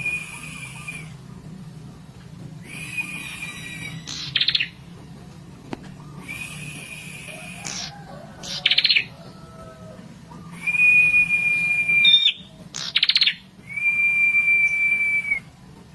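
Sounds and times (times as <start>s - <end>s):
bird whistled notes: 0.0s - 1.2s, 2.6s - 4.8s, 6.0s - 9.2s, 10.5s - 15.5s.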